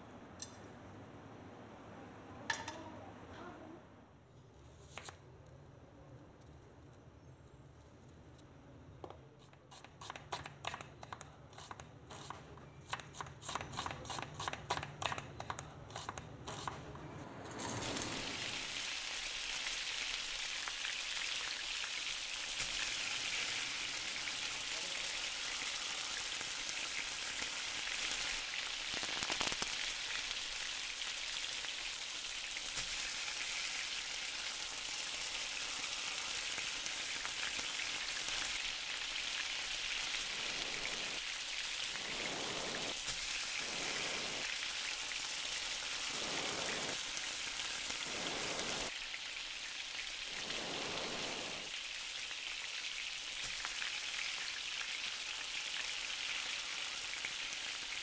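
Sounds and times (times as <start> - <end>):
vegetables sizzling in oil: 17.8 - 58.0.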